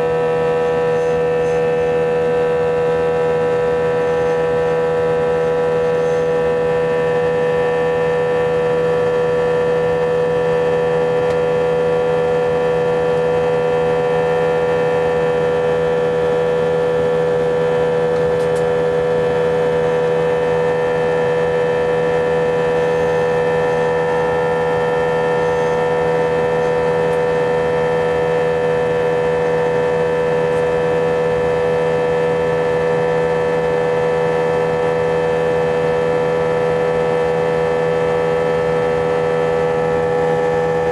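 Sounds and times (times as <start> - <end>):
jet engine drone in cabin: 0.0 - 40.9.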